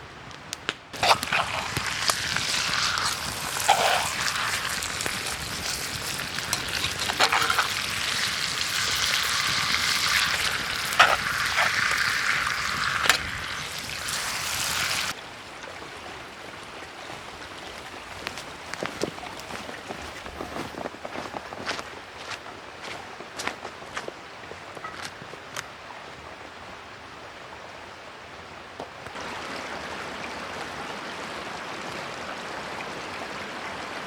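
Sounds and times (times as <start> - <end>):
food sizzling over campfire: 0.9 - 15.2, 29.2 - 32.2.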